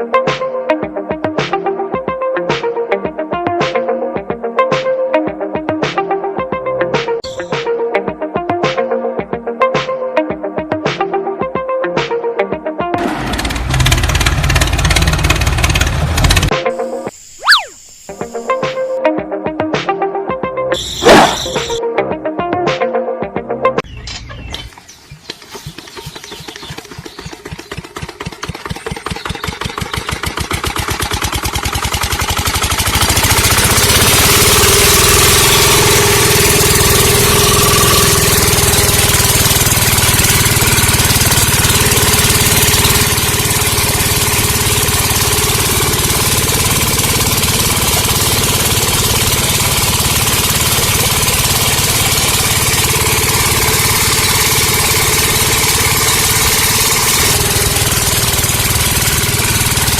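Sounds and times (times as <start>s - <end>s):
small water pump motor chugging: 13.0s - 16.5s, 24.8s - 59.9s
loud hiss: 16.6s - 19.0s.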